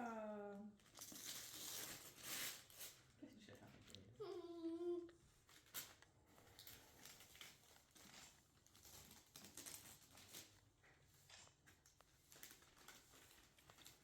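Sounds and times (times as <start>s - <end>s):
packaging crinkling: 0.8s - 3.1s, 5.4s - 10.8s, 11.4s - 14.0s.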